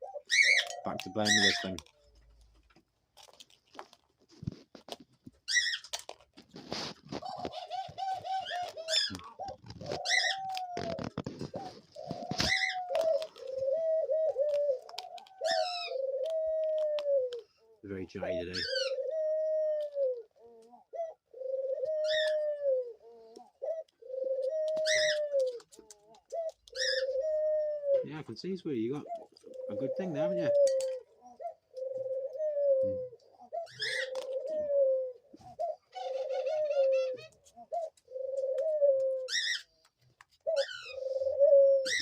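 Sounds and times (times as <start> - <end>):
dove pecking and tapping: 0.0 - 17.5, 18.6 - 28.0, 29.0 - 42.0
rustle: 0.5 - 17.4
dove wavering call: 7.2 - 17.4, 20.9 - 25.6, 26.3 - 28.2, 29.0 - 39.7.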